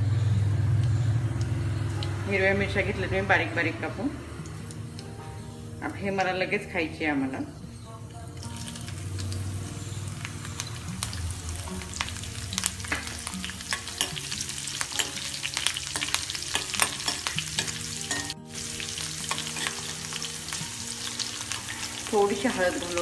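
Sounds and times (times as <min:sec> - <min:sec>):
chillies sizzling in hot oil: 0:00.0 - 0:23.0
spoon stirring: 0:12.9 - 0:22.1.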